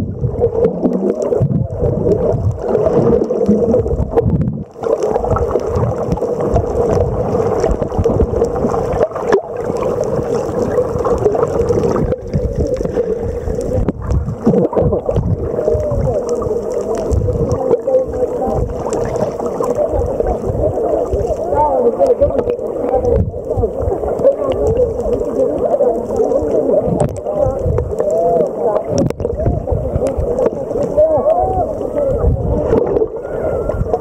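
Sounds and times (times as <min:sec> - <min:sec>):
gurgling water: 0:00.0 - 0:34.0.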